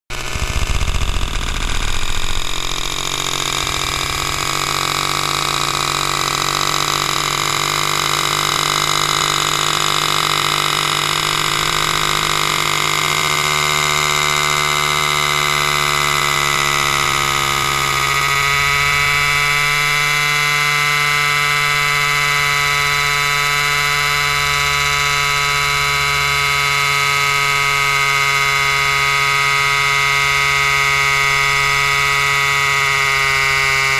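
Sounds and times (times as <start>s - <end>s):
chainsaw engine running: 0.1s - 33.9s.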